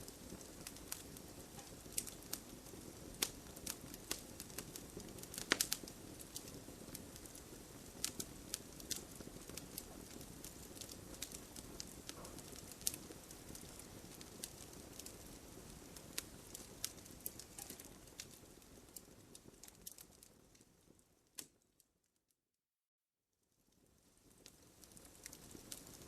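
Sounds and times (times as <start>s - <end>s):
campfire crackling: 0.0s - 21.6s, 23.8s - 26.0s.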